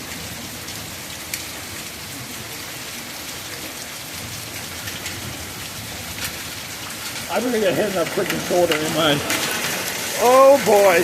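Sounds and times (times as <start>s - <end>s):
heavy rain and hail: 0.0s - 11.0s
hailstones clicking: 1.2s - 1.8s, 4.0s - 11.0s.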